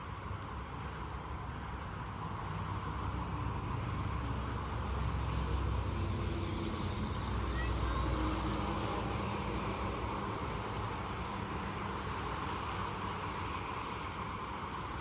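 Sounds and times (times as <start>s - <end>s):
motor vehicle rumble: 0.0s - 14.6s.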